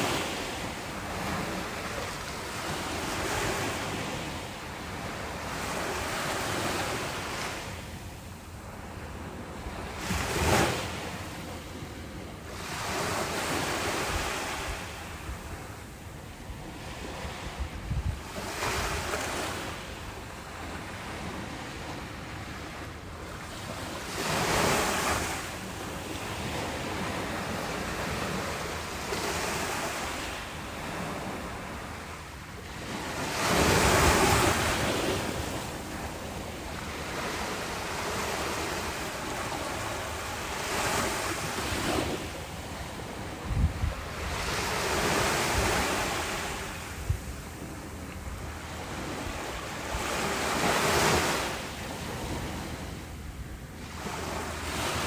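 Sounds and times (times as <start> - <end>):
ocean waves breaking on beach: 0.0 - 55.0
wind thumps on microphone: 43.4 - 46.0.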